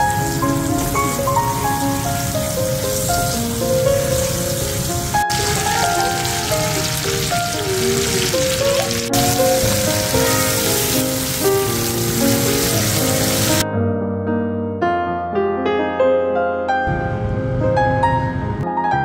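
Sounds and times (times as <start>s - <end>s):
hot oil sizzling in a wok: 0.0s - 13.6s
background music: 0.0s - 13.7s.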